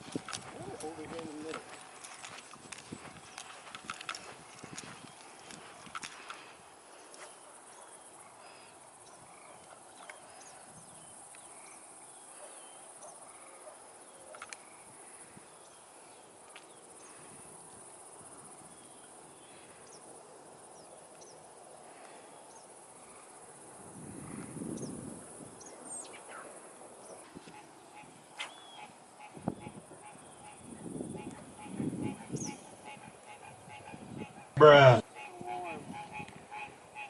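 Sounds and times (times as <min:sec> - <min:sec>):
high buzzing of insects: 0:22.9 - 0:37.0.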